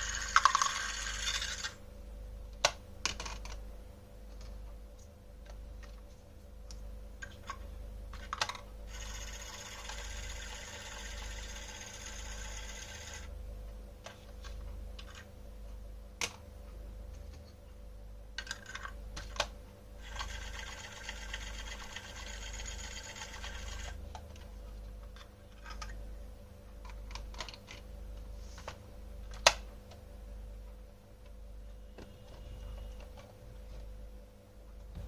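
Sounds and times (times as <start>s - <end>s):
steady low hum: 0.0s - 35.0s
plastic toy pieces clicking: 0.1s - 1.8s.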